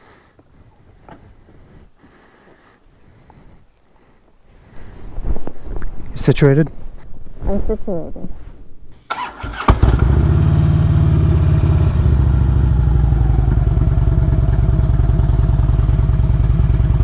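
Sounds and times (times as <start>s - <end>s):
motorcycle engine idling: 9.1s - 17.0s.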